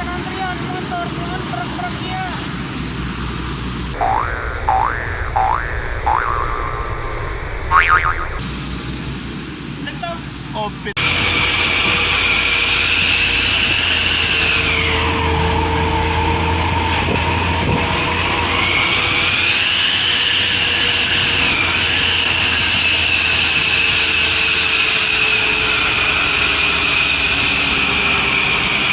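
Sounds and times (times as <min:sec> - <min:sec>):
low engine rumble: 0:00.0 - 0:28.9
exhaust whistle: 0:11.0 - 0:28.9.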